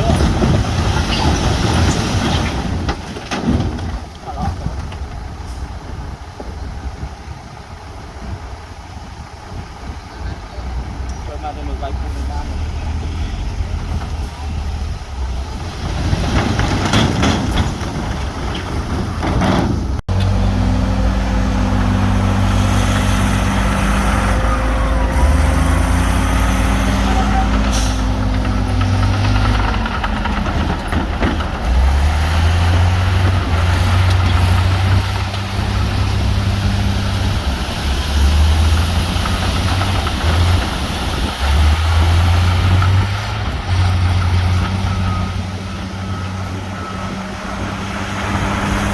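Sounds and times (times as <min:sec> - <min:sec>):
rough clattering noise: 0:00.0 - 0:05.3, 0:15.7 - 0:20.4, 0:21.8 - 0:44.8
heavy diesel engines running: 0:00.0 - 0:48.9.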